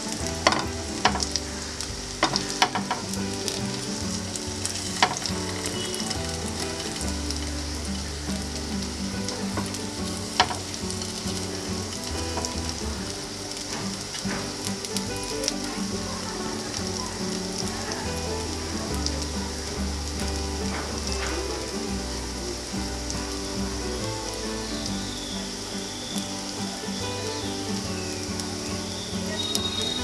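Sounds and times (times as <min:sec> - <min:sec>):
kababs sizzling in a pan: 0:00.0 - 0:30.0.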